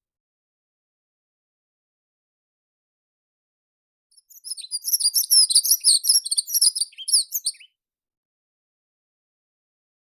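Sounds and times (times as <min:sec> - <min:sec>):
songbird twittering: 0:04.2 - 0:07.7.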